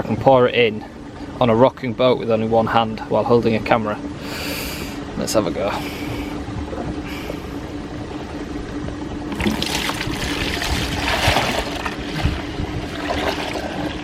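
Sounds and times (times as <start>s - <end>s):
water pouring and splashing: 9.3s - 14.0s.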